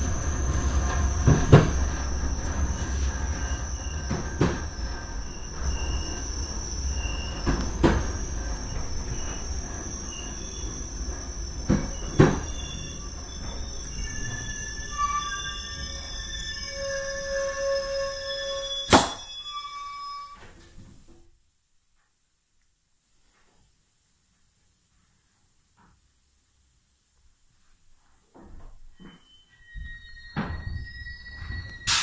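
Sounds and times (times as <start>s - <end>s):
train low rumble: 0.0s - 18.8s
high wheel squeal: 0.0s - 20.5s, 29.0s - 32.0s.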